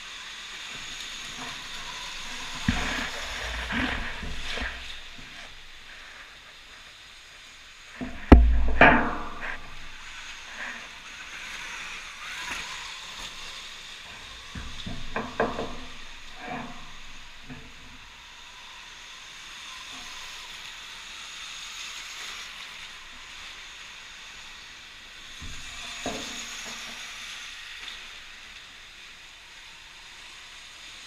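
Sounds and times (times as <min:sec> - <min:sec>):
electric motorbike whine: 0:00.0 - 0:31.0
knocks: 0:08.0 - 0:09.9, 0:14.5 - 0:16.8.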